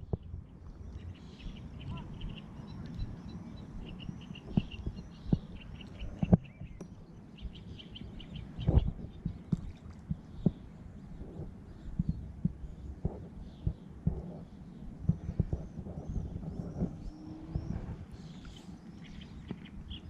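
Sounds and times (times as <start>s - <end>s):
birds chirping: 0.0s - 20.0s
low rumble: 8.4s - 19.4s.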